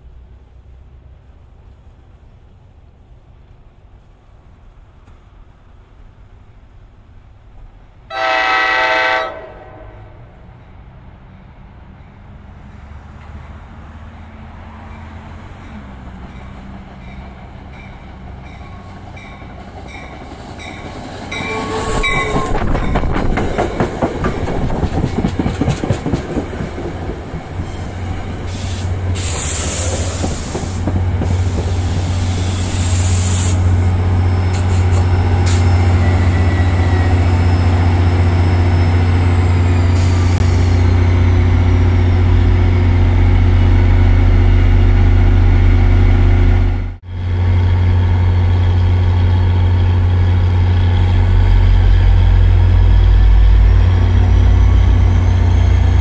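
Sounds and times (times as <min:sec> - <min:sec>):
train passing close by: 0:00.0 - 0:56.0
wheels clattering over rail joints: 0:15.6 - 0:32.2
loud low hum: 0:40.4 - 0:56.0.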